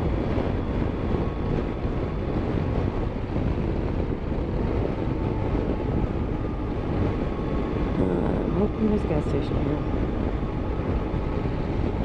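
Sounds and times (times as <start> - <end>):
motorcycle engine and road rumble: 0.0 - 12.0
wind rushing over microphone: 0.0 - 12.0.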